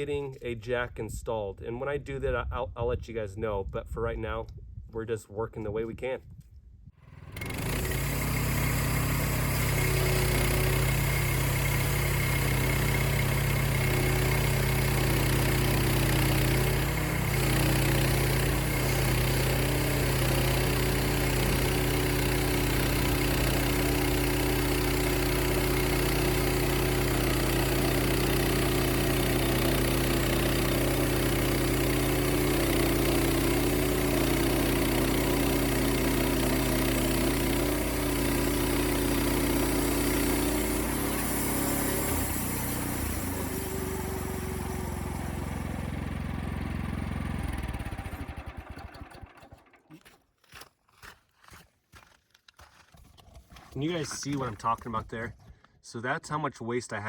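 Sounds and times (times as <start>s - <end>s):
sawmill engine running: 7.1s - 49.9s.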